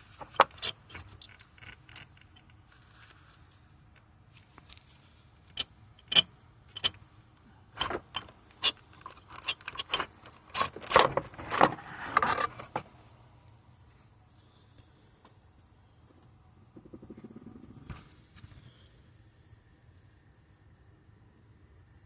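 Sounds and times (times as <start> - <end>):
metal tools clinking and rattling: 7.8 - 11.1.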